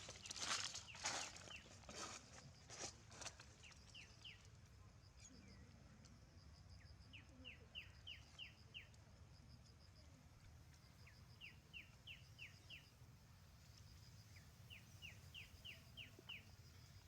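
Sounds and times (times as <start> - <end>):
bird chirping: 11.0 - 12.9, 14.0 - 17.0.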